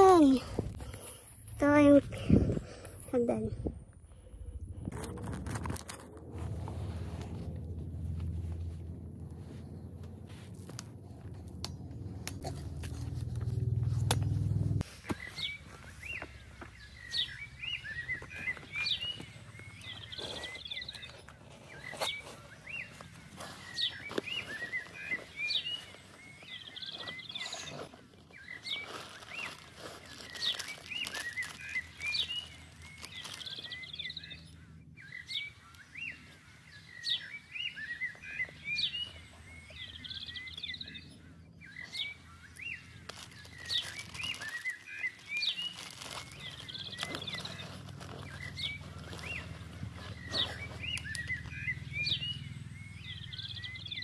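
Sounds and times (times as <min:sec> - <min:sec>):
birds chirping: 0:00.0 - 0:54.0
rustles and clicks: 0:04.8 - 0:34.2, 0:41.8 - 0:54.0.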